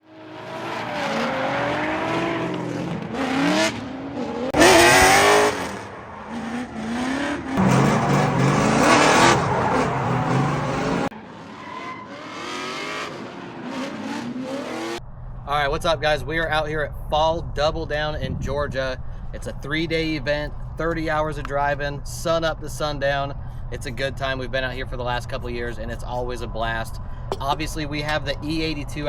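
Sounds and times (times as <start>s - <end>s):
car engines revving hard: 0.0s - 15.0s
tire squeal: 0.0s - 15.0s.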